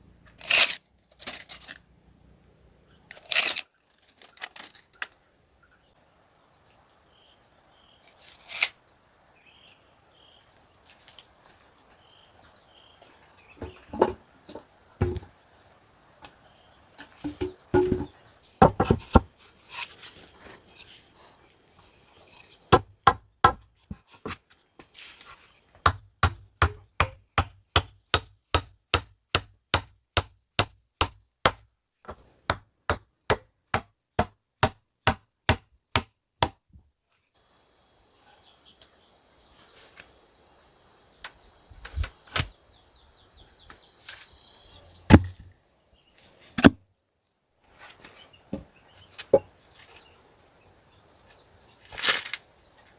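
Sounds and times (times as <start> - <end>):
hand tool striking: 17.2 - 19.2.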